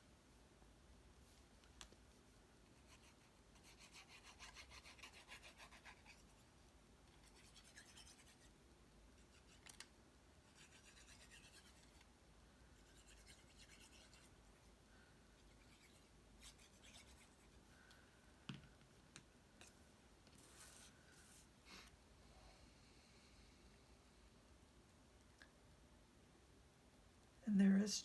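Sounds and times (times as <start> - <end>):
rubbing strokes on card stock: 2.7 - 6.5, 10.5 - 12.0, 12.8 - 14.4, 15.5 - 17.7.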